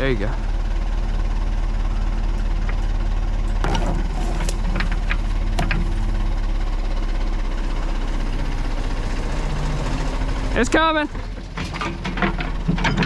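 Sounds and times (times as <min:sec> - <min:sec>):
backhoe diesel engine running: 0:00.0 - 0:13.0
short clanks: 0:02.6 - 0:06.0, 0:11.2 - 0:13.0.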